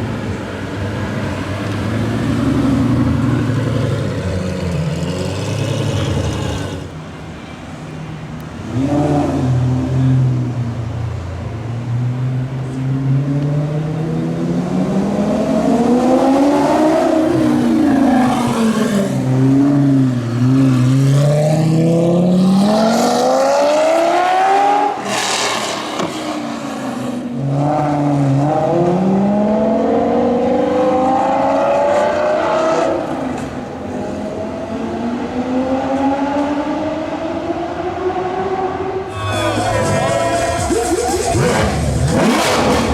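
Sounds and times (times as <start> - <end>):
supercar engines revving: 0.0 - 42.9.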